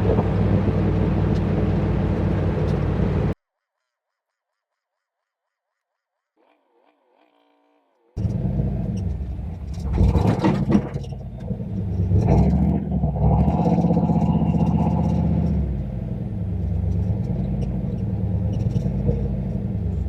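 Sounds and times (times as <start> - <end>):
car engine running loudly: 0.0 - 3.4, 8.2 - 20.0
rush of noise: 0.0 - 3.4.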